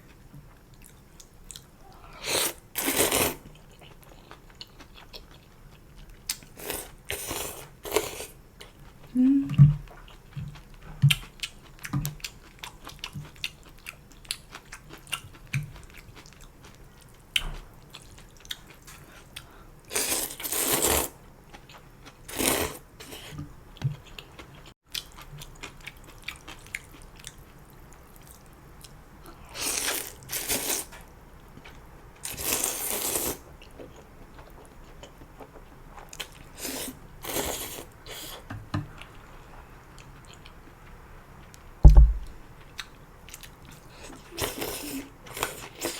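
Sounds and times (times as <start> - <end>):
slurping noodles: 2.2 - 3.4, 19.9 - 21.2, 22.3 - 23.3, 32.3 - 33.4
wet chewing and crunching: 2.4 - 38.4.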